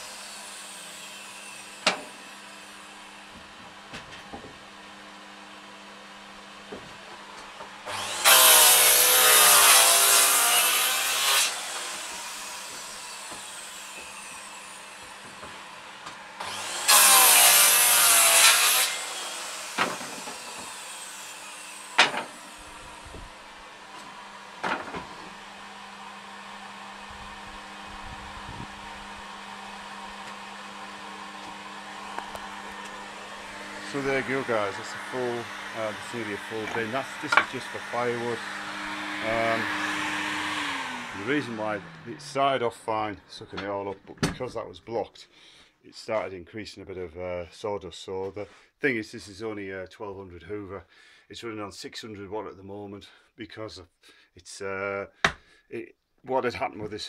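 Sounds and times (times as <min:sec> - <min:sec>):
vacuum cleaner humming: 0:00.0 - 0:43.6
circular saw cutting wood: 0:00.0 - 0:44.6
wooden offcuts knocking: 0:22.0 - 0:22.4.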